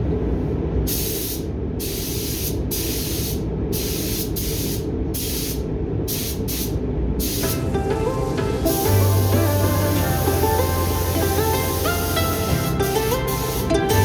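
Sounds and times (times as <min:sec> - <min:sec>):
steady low hum: 0:00.0 - 0:14.0
spray gun hissing: 0:00.9 - 0:07.6, 0:08.6 - 0:14.0.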